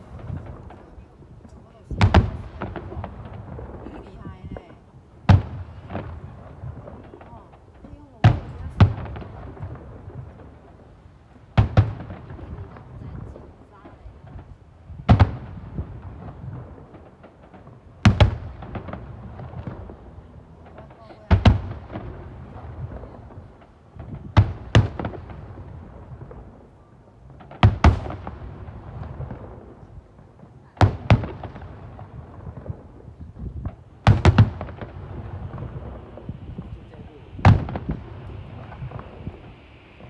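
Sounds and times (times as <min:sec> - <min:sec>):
firework crackle: 0:00.0 - 0:40.0
firework shells booming: 0:00.0 - 0:40.0
rumbling echo: 0:31.0 - 0:40.0.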